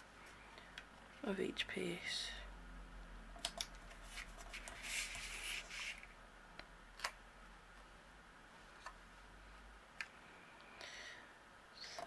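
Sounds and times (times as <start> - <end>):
paper rustling: 3.9 - 6.1.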